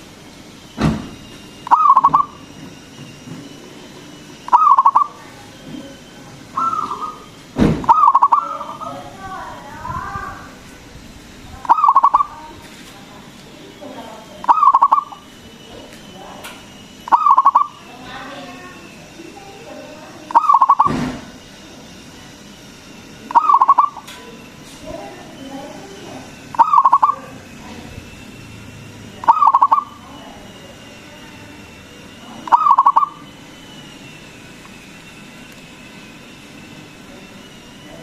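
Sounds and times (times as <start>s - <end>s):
dove cooing: 1.6s - 2.5s, 4.5s - 5.4s, 6.5s - 9.2s, 11.6s - 12.6s, 14.4s - 15.3s, 17.0s - 18.2s, 20.2s - 21.0s, 23.3s - 24.1s, 26.2s - 27.8s, 29.0s - 30.5s, 32.4s - 33.4s.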